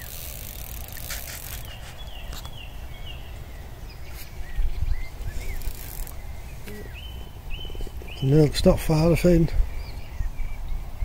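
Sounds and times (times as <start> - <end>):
high bird chirps: 0.0 - 8.4.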